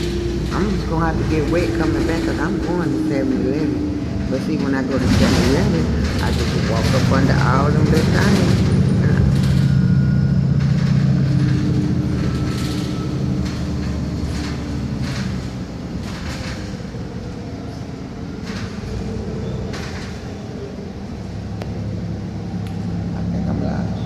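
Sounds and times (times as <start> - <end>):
bus body rattles and clunks: 0.0 - 24.0
bus engine and road rumble: 0.0 - 24.0.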